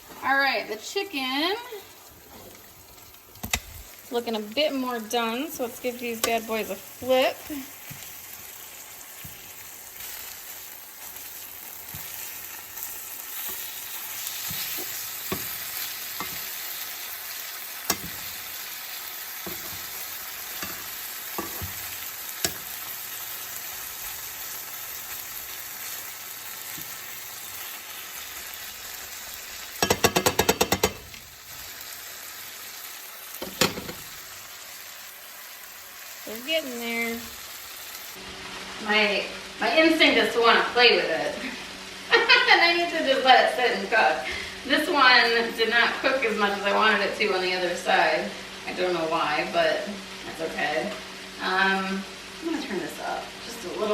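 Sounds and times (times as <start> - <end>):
cutlets sizzling in hot oil: 0.0 - 53.9
utensil clicking against pan: 6.1 - 6.5, 29.8 - 31.2.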